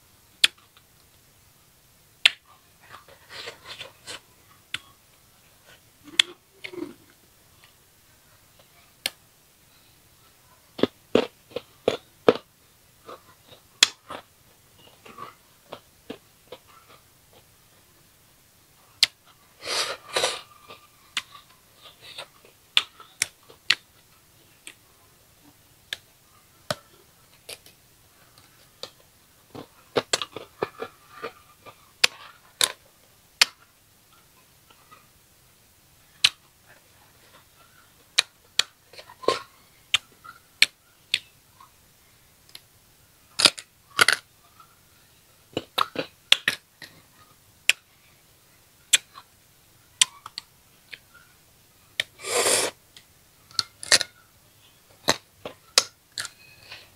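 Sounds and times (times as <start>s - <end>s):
crunchy fruit being chewed: 10.8s - 17.6s, 26.6s - 32.8s, 45.5s - 47.3s.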